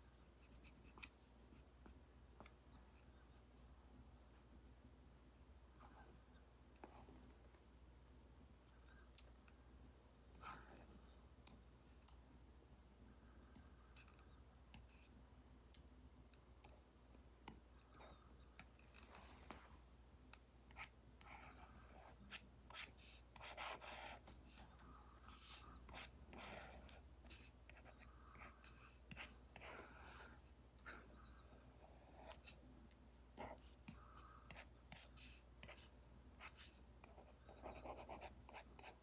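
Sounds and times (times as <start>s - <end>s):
stylus tapping and scratching screen: 0.4s - 2.6s, 32.2s - 39.0s.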